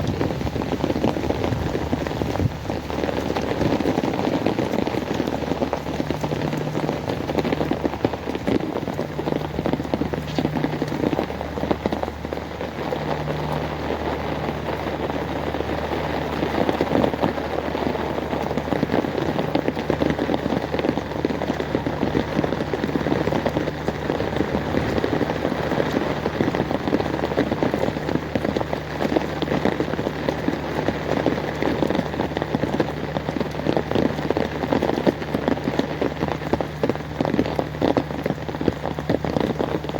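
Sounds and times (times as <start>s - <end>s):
heavy rain on hard surfaces: 0.0s - 39.9s
low steady hum: 0.0s - 39.9s.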